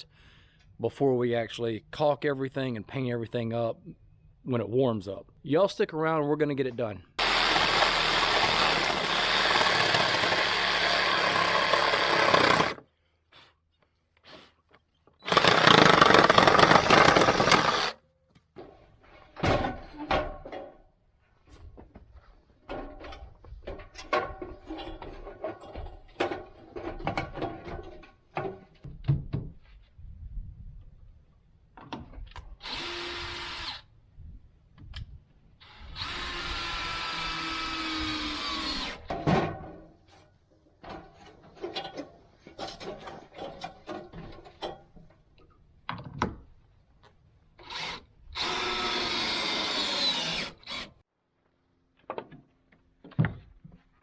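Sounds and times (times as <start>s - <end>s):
power drill running: 7.2s - 12.8s, 15.2s - 18.0s, 32.6s - 33.8s, 35.6s - 39.0s, 47.7s - 51.0s
lumber and tools clattering: 22.6s - 28.8s, 40.8s - 45.3s.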